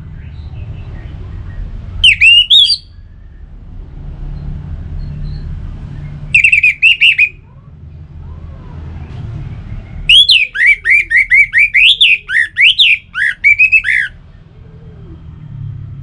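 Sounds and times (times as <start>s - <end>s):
low steady rumble: 0.0s - 16.0s
thrush singing whistled notes: 0.2s - 3.5s, 4.4s - 7.4s, 10.0s - 14.2s.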